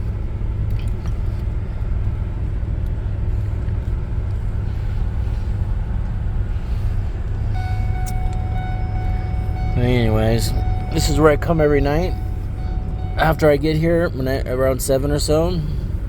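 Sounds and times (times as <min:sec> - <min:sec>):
vehicle engine and tyres rumbling: 0:00.0 - 0:16.0
faint steady tone: 0:04.6 - 0:16.0.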